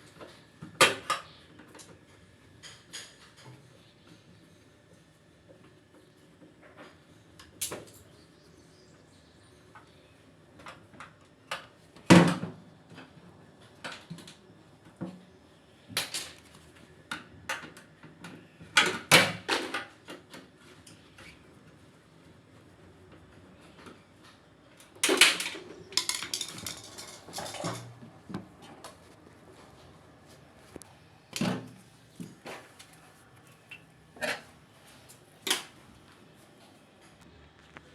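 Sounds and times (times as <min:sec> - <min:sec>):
clatter of tools and parts: 0:25.0 - 0:27.9.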